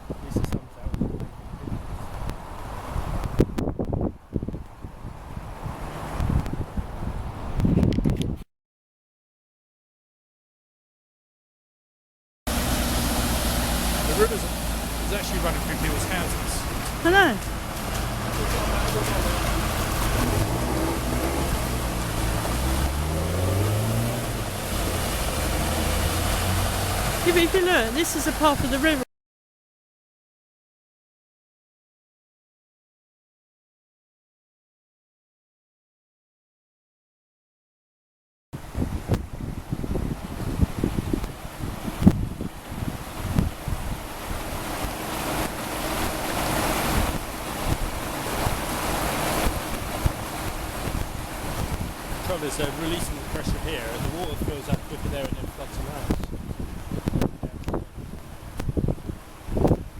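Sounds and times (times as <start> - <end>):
rushing wind and water: 0.0 - 8.4, 12.5 - 29.1, 38.6 - 59.9
engine running with low hum: 12.5 - 28.4.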